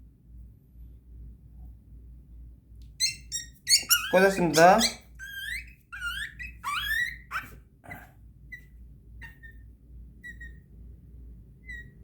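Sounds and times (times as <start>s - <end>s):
puppy whining and yelping: 3.0s - 10.7s, 11.6s - 12.0s
faint puppy squeaks: 3.0s - 10.8s, 11.5s - 12.0s.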